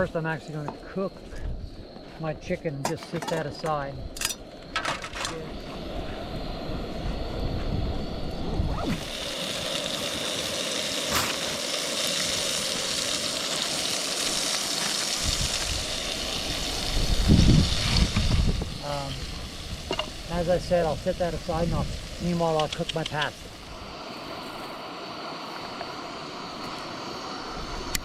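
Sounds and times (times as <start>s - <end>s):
chicken sizzling in a pan: 8.9s - 25.3s.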